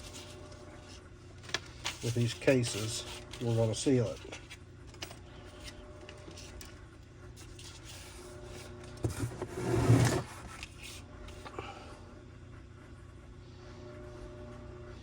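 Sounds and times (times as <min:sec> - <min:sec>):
loud scraping rub: 0:09.2 - 0:10.6.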